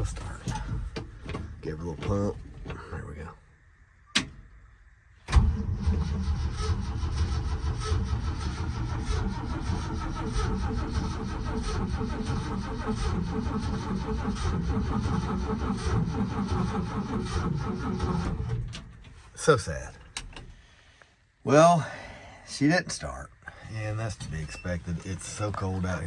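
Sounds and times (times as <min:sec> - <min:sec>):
engine cranking on starter: 0:05.3 - 0:19.2.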